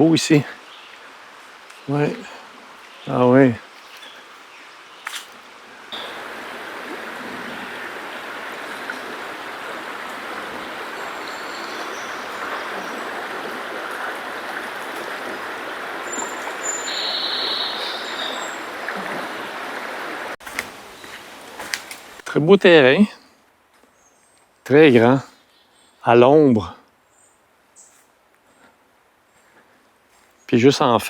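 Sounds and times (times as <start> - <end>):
river water rushing: 0.0 - 21.7.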